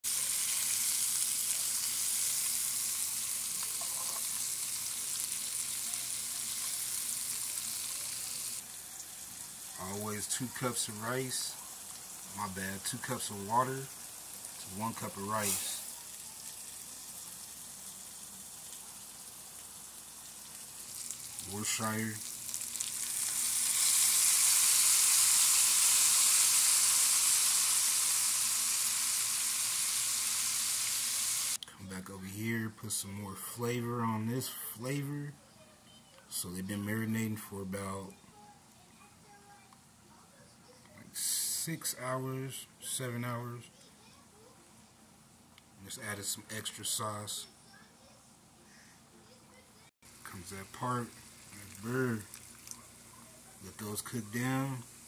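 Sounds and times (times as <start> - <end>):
peppers sizzling in hot oil: 0.0 - 31.6, 50.0 - 55.0
sauce poured into pan: 0.1 - 31.6, 50.2 - 55.0.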